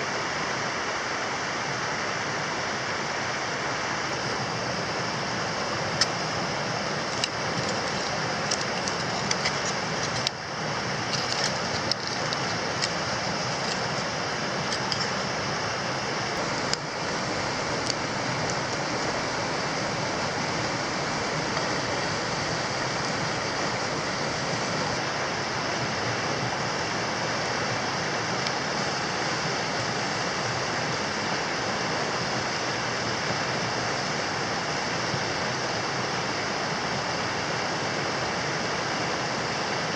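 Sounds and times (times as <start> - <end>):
steady rushing noise: 0.0 - 39.9
campfire crackling and popping: 5.9 - 15.5, 16.3 - 25.0.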